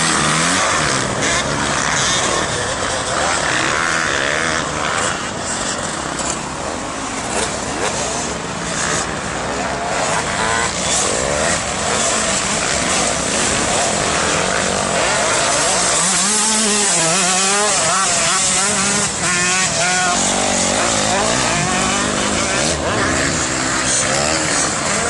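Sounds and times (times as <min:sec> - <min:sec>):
motocross bike engines revving: 0:00.0 - 0:25.0.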